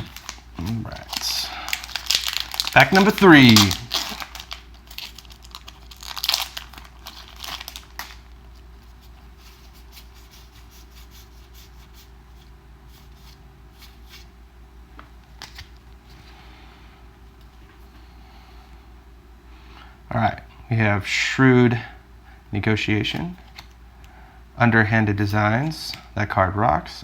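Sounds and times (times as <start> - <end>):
foil wrapper tearing and crinkling: 0.0 - 8.6
cards being handled: 0.0 - 14.3, 15.0 - 15.8.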